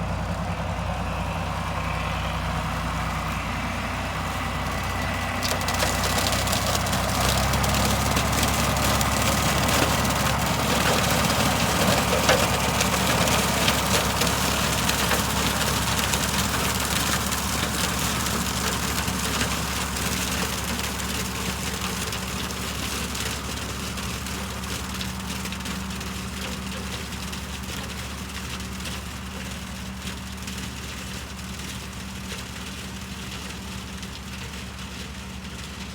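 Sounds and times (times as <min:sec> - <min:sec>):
tractor engine running: 0:00.0 - 0:35.9
rotary cutter cutting stalks: 0:04.8 - 0:20.7.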